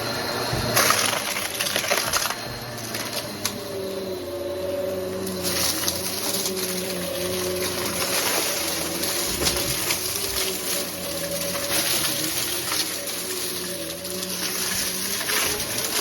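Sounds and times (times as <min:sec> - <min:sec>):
vacuum cleaner motor hum: 0:00.0 - 0:16.0
debris rattling being sucked up: 0:05.2 - 0:16.0.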